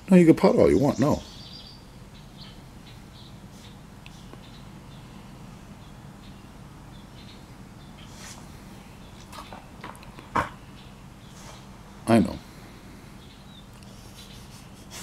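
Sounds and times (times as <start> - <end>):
low background hum: 0.0 - 15.0
faint high bird chirps: 0.5 - 11.7.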